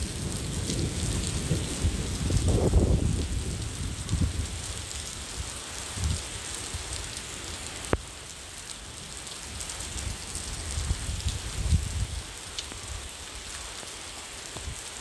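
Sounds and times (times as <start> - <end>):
steady rain: 0.0 - 15.0
drip-like tick: 7.9 - 8.1, 12.6 - 12.8.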